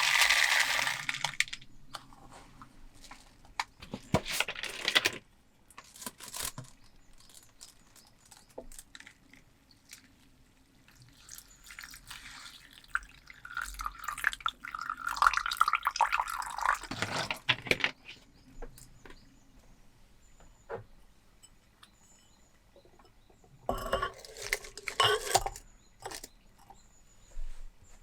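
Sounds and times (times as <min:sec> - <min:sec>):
water running into container: 0:00.0 - 0:01.6, 0:10.9 - 0:17.2.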